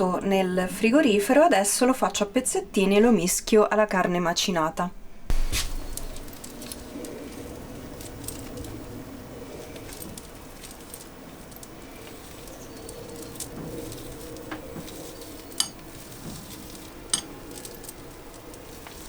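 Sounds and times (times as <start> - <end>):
faint steady hiss: 0.0 - 19.0
knife and utensils clinking: 5.8 - 19.0.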